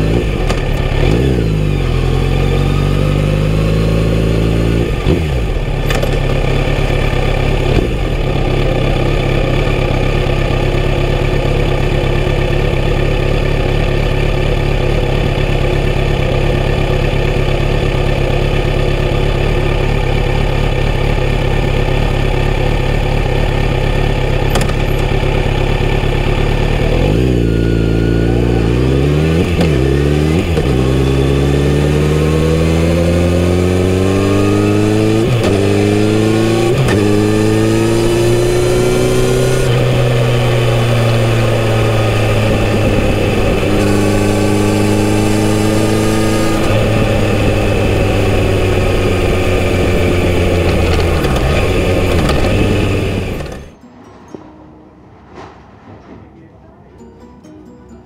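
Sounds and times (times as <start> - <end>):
motorcycle engine idling and accelerating: 0.0 - 53.8.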